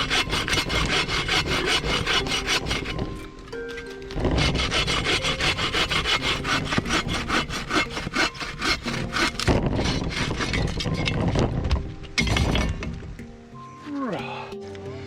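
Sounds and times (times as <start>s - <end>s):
hand saw cutting wood: 0.0s - 11.5s.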